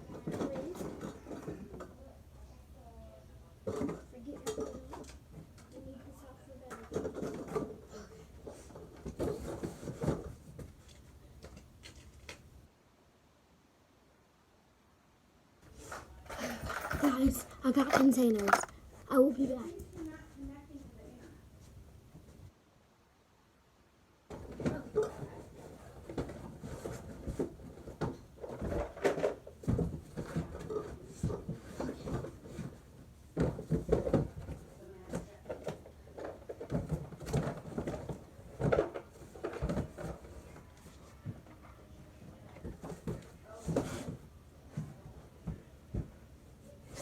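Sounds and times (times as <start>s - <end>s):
knocks and clatter of handled objects: 0.0s - 2.0s, 3.6s - 6.0s, 6.6s - 12.5s, 15.7s - 20.2s, 24.3s - 47.0s
objects being handled: 6.6s - 12.6s, 15.6s - 20.2s.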